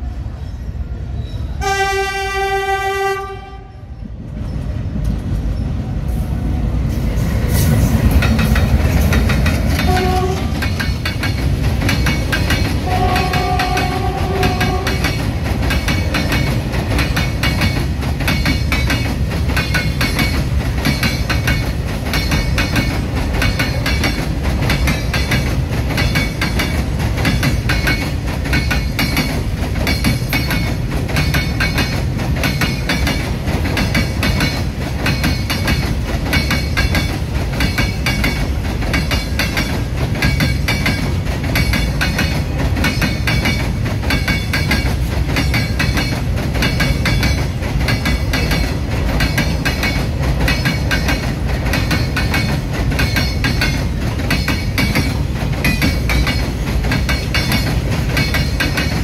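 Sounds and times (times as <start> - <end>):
locomotive horn blasts: 1.6 - 3.8, 9.8 - 10.6, 12.8 - 15.0
wheels clacking over rail joints: 6.9 - 59.0.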